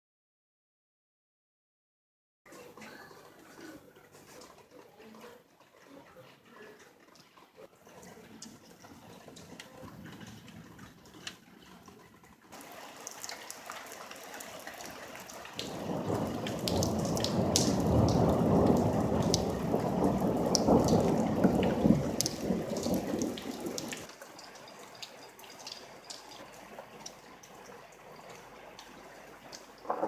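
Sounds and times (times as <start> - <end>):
rain falling: 7.6 - 30.0
drips ticking: 12.5 - 30.0
thunder rumble: 15.6 - 24.1.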